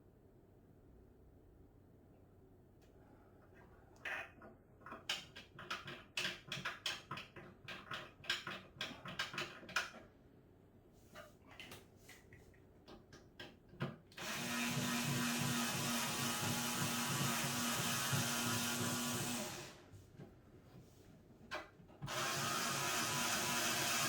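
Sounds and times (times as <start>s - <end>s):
power tool motor buzzing: 14.2s - 19.8s, 22.1s - 24.0s.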